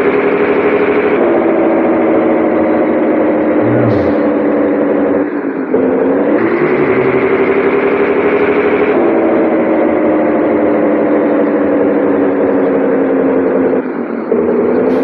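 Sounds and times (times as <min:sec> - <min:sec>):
diesel truck engine running: 0:03.4 - 0:15.0.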